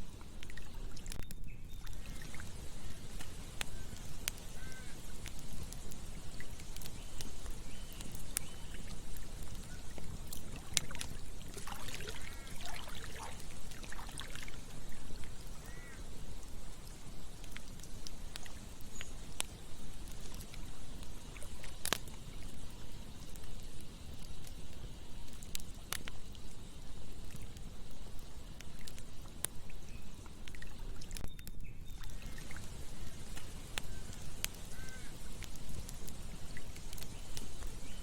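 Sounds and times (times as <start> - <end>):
campfire crackling and popping: 0.0 - 38.0
flowing stream: 1.8 - 23.4, 32.0 - 37.8.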